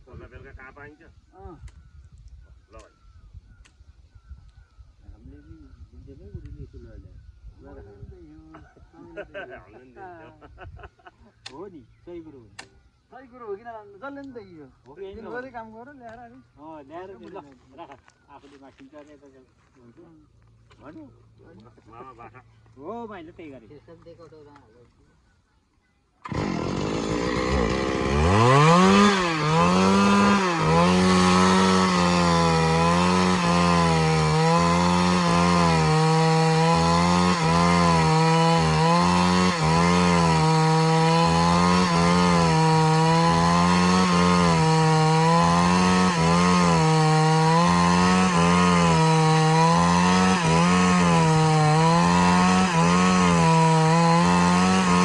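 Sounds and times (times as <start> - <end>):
chainsaw cutting wood: 26.2 - 55.0.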